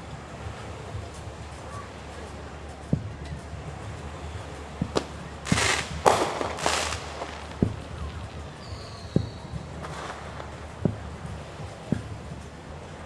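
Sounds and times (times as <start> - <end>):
fireworks crackling bursts: 0.0 - 13.0
fireworks booming: 4.8 - 12.2.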